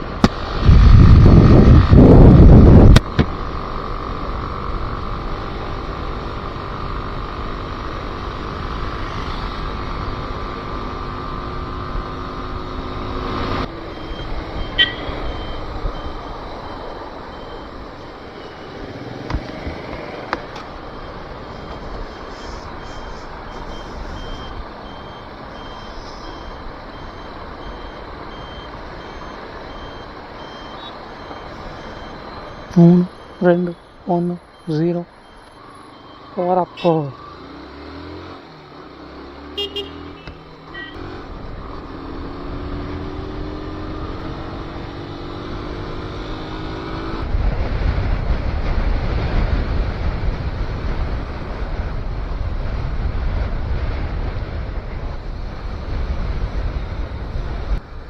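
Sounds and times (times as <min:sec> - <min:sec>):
motorcycle engine running: 0:00.0 - 0:58.0
road noise: 0:00.0 - 0:58.0
high-pitched beep: 0:13.8 - 0:18.8, 0:20.8 - 0:37.6, 0:39.6 - 0:41.0.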